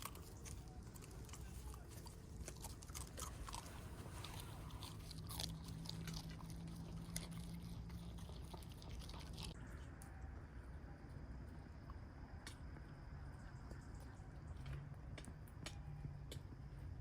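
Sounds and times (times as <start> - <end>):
chewing and biting: 0.0 - 10.2.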